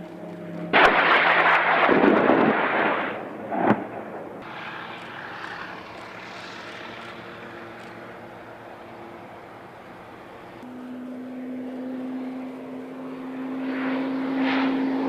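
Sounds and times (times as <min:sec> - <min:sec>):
military jet engine overhead: 0:00.0 - 0:15.0
sharp bang: 0:00.7 - 0:04.6
weapons blast rumbling: 0:00.7 - 0:04.7.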